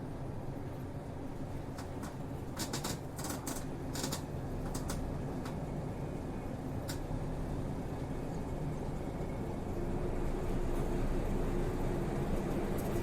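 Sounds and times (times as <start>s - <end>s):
bus engine and road drone: 0.0s - 13.0s
sharp clicks and rattles: 1.8s - 5.0s.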